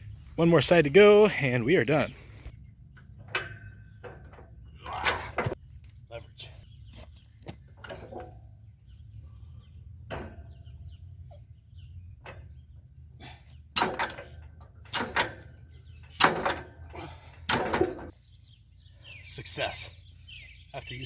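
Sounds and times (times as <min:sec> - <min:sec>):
metal-on-metal knocks: 0:13.8 - 0:15.5, 0:16.1 - 0:16.8, 0:17.5 - 0:18.2.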